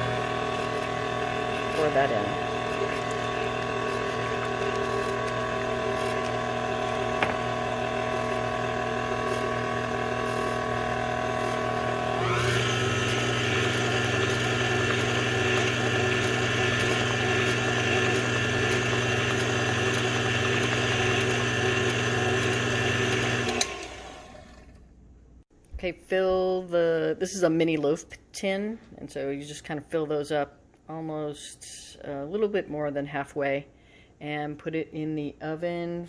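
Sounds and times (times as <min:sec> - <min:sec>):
electric mixer motor running: 0:00.0 - 0:24.8.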